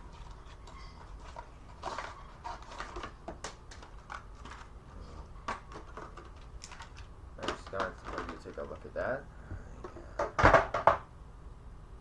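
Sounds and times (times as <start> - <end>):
cardboard and plastic packaging rustling: 0.0 - 9.2
low steady hum: 0.0 - 12.0.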